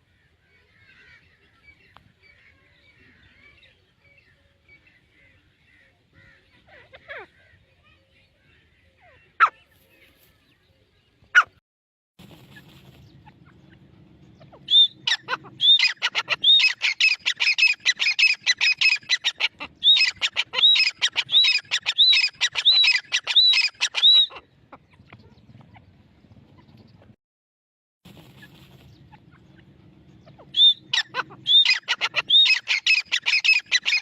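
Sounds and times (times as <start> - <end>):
francolin calling: 14.4 - 24.4, 30.2 - 34.0.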